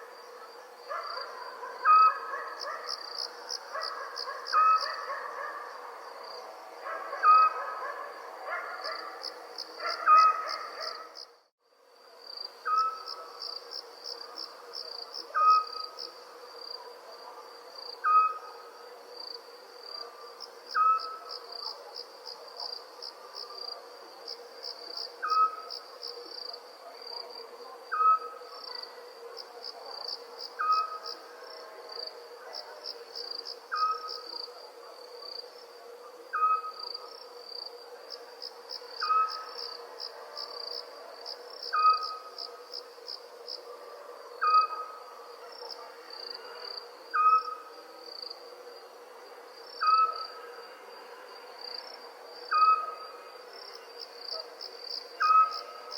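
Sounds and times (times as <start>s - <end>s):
crickets chirping: 0.0s - 55.9s
small owl hooting: 47.1s - 47.7s.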